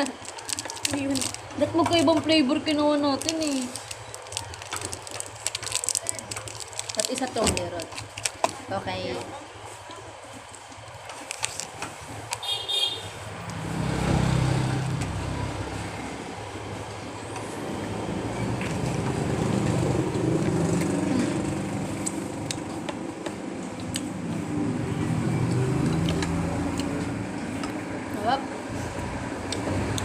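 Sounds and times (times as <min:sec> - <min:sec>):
road traffic rumble: 0:00.0 - 0:30.0
heavy vehicle passing: 0:13.1 - 0:22.6, 0:24.1 - 0:30.0.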